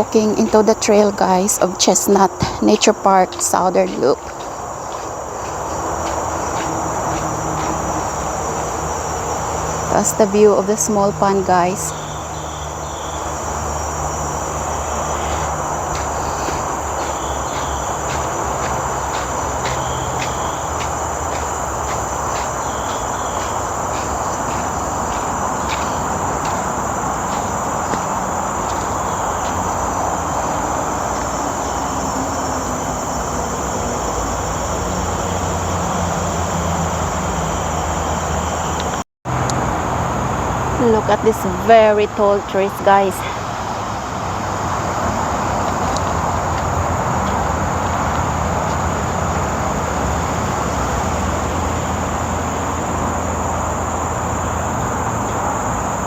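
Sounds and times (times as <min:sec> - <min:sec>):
footsteps on trail: 0:00.0 - 0:33.3, 0:45.1 - 0:49.8
broad rushing noise: 0:00.0 - 0:33.7
high insect drone: 0:00.0 - 0:56.0.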